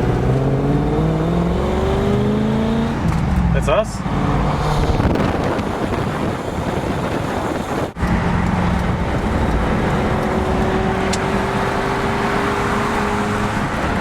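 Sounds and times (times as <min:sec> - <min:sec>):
car engine drone: 0:00.0 - 0:14.0
road and wind noise: 0:00.0 - 0:14.0.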